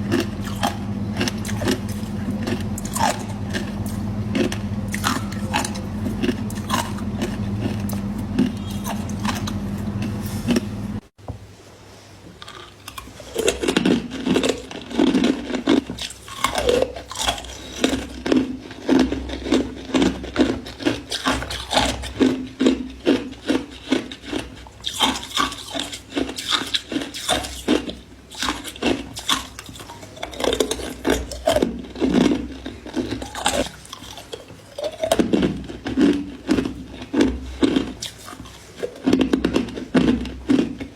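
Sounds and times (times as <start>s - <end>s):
person crunching and chewing ice: 0.0s - 10.7s, 12.4s - 40.9s
steady hum: 0.0s - 11.9s.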